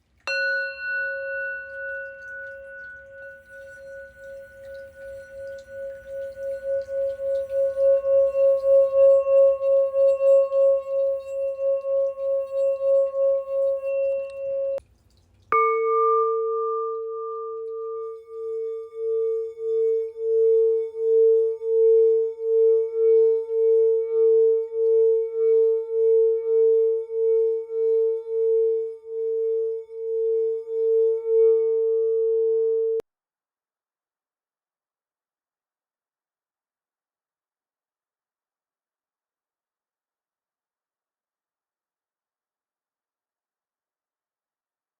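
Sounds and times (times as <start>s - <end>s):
lower singing bowl struck and rubbed: 0.2s - 14.8s, 15.5s - 33.0s
singing bowl sung around rim: 0.2s - 14.8s, 15.5s - 33.0s.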